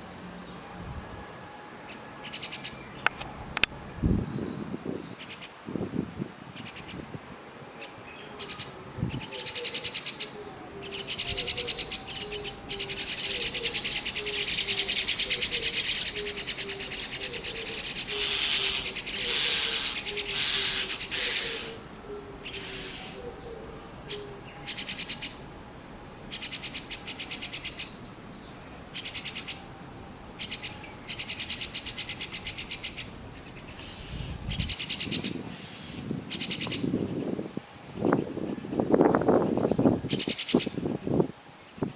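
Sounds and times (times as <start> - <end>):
nestlings begging calls: 10.8 - 34.8
thin high whine: 19.8 - 32.7.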